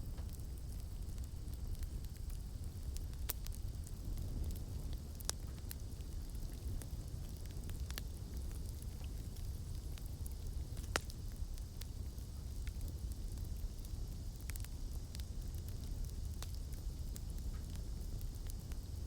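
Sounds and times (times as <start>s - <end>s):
burning wood popping: 0.0s - 18.9s
campfire crackling: 0.0s - 19.0s.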